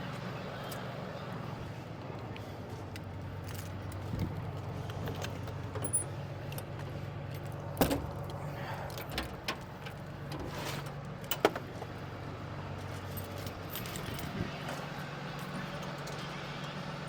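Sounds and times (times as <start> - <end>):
low engine hum: 0.0 - 17.0
metallic clinks and knocks: 13.1 - 14.7.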